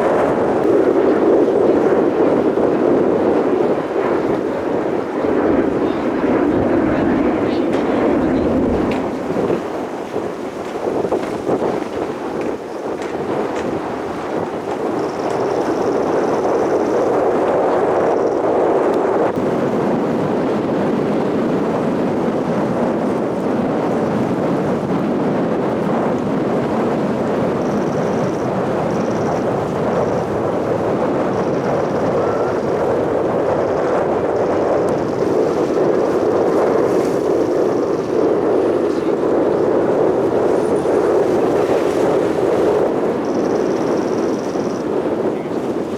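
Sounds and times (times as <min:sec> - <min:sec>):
faint turbine whine: 0:00.0 - 0:11.6, 0:27.5 - 0:45.9
jet roar: 0:01.8 - 0:11.7.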